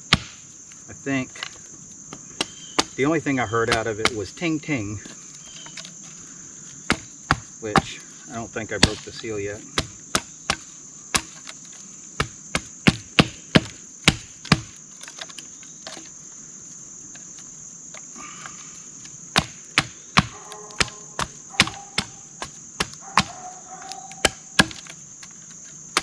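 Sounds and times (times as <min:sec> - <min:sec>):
sharp cracks and knocks: 0:00.0 - 0:04.3, 0:06.8 - 0:08.0, 0:08.7 - 0:16.1, 0:17.1 - 0:26.0
high-pitched insect drone: 0:20.1 - 0:26.0.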